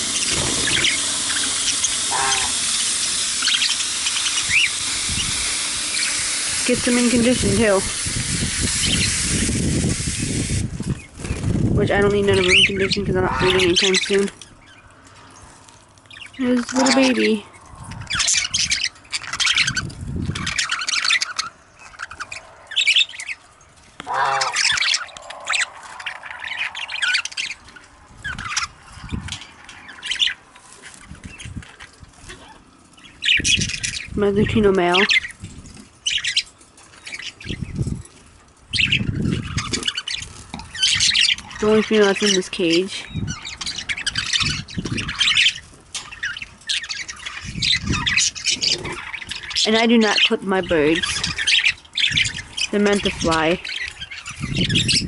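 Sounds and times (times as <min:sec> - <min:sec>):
loud long bird call: 0:00.0 - 0:06.5, 0:24.0 - 0:27.6
budgerigars chattering: 0:00.0 - 0:09.3, 0:11.9 - 0:14.8, 0:16.1 - 0:23.4, 0:24.0 - 0:30.4, 0:32.3 - 0:35.4, 0:36.0 - 0:37.8, 0:38.7 - 0:55.0.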